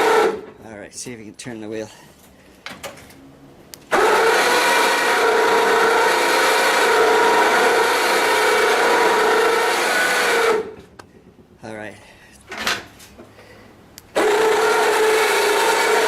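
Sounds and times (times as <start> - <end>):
electric winch motor whining: 0.0 - 0.6, 3.9 - 10.9, 14.1 - 16.0.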